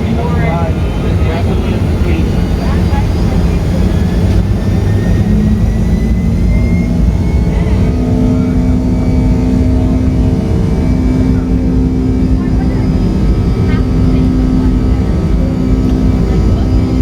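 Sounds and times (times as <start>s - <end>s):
jet engine roar: 0.0s - 17.0s
steady engine tones: 0.0s - 17.0s.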